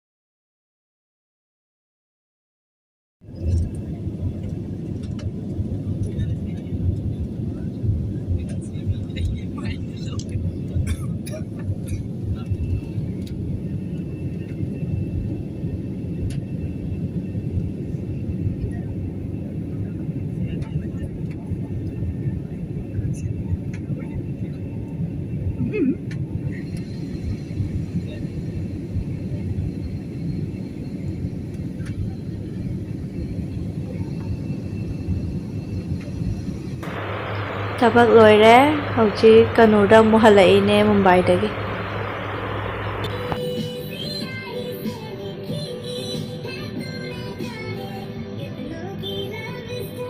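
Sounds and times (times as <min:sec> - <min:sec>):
vehicle rumble from inside cabin: 0:36.8 - 0:43.4
faint high steady tone: 0:36.8 - 0:43.5.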